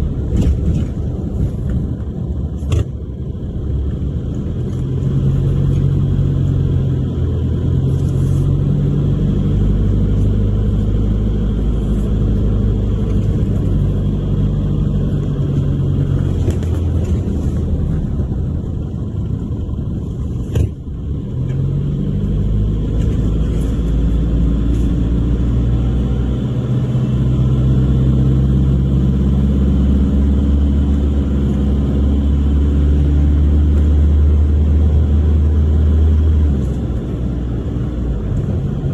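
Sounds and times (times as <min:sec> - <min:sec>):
car engine revving through gears: 0:21.1 - 0:38.9.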